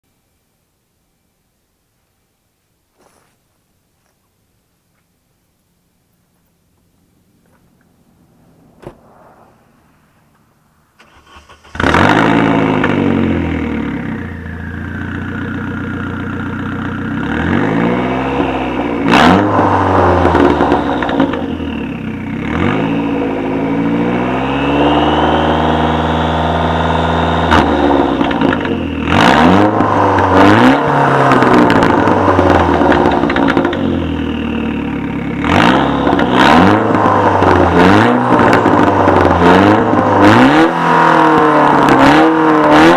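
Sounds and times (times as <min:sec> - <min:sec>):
car engine starting and revving: 0:07.2 - 0:42.9.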